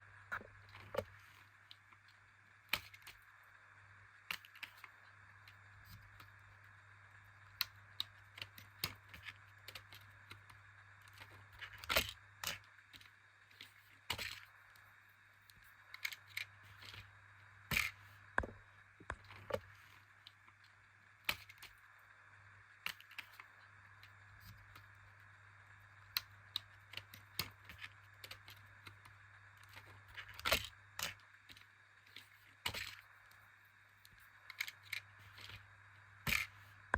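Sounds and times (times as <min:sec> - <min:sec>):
steady low hum: 0:00.0 - 0:36.9
plastic bricks clicking and scraping: 0:07.6 - 0:14.6, 0:15.5 - 0:17.1, 0:26.1 - 0:33.4, 0:34.0 - 0:36.9.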